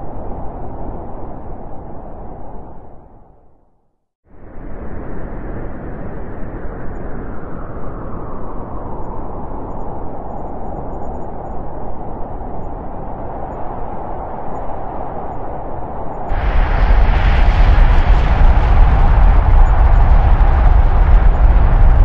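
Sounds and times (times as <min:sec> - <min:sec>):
thunder rumbling: 0:16.3 - 0:22.0.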